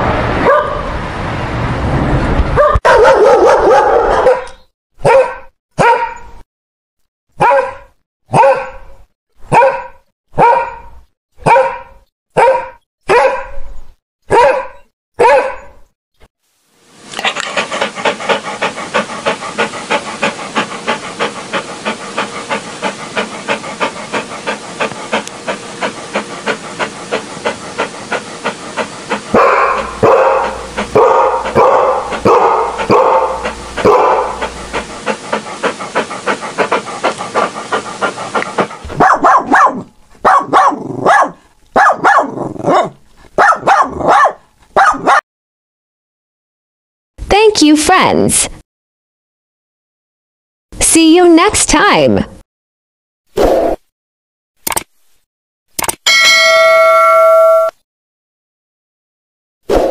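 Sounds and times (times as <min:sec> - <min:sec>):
dog barking: 0:00.4 - 0:00.9, 0:02.6 - 0:06.3, 0:07.4 - 0:13.7, 0:14.3 - 0:15.8, 0:29.3 - 0:34.6, 0:38.8 - 0:45.2
dog panting: 0:17.1 - 0:40.3.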